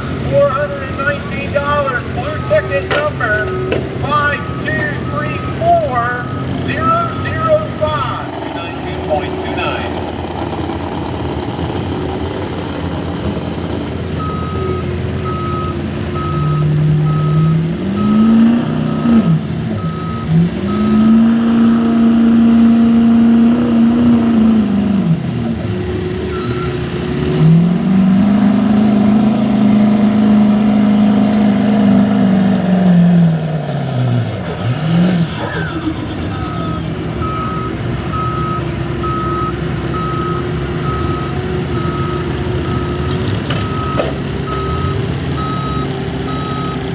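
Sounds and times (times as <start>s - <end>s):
engine revving: 0.0s - 46.9s
reversing alarm beeping: 0.1s - 9.8s, 14.2s - 19.2s, 19.8s - 21.2s, 35.2s - 46.9s.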